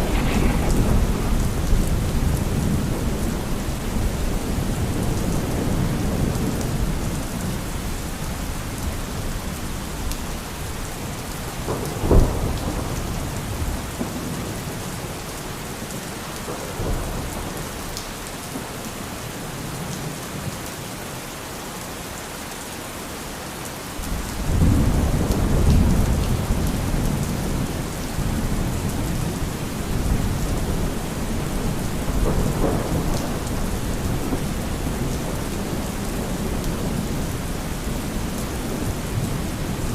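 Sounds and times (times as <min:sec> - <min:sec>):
sharp thunderclap: 0:00.0 - 0:05.9, 0:31.6 - 0:35.4
low rumble of thunder: 0:00.0 - 0:09.7, 0:10.6 - 0:15.2, 0:24.0 - 0:39.9
heavy rain: 0:00.0 - 0:39.9.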